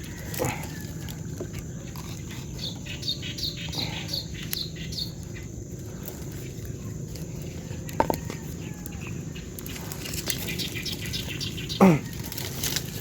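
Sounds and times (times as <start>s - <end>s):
bird chirping: 1.6s - 7.9s, 8.5s - 12.2s.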